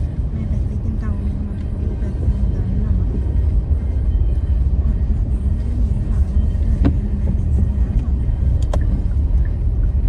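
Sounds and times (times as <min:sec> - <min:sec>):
car engine and tyre noise: 0:00.0 - 0:10.0.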